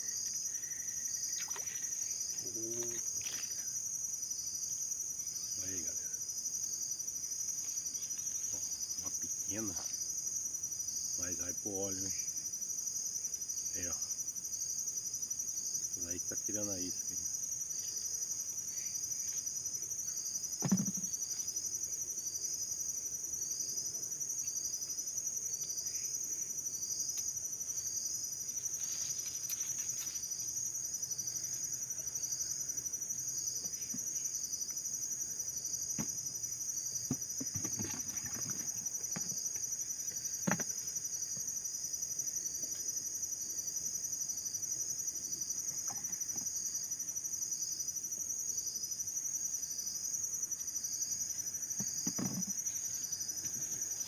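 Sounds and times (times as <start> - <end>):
insect high-pitched trill: 0.0 - 54.0
pulsing insect chirp: 0.0 - 54.0
sharp knocks: 20.6 - 21.1.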